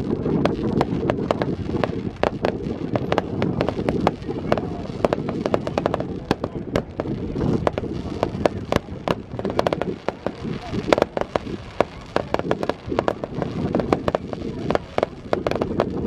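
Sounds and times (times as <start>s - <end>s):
continuous low rumble: 0.0s - 16.0s
firecrackers cracking and banging: 0.0s - 16.0s.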